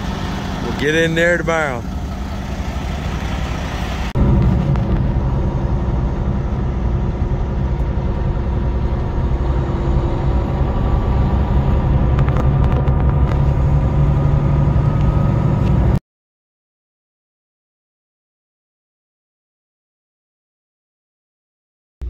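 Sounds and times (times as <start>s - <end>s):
diesel truck engine droning: 0.0s - 16.0s
road rumble: 0.0s - 16.0s.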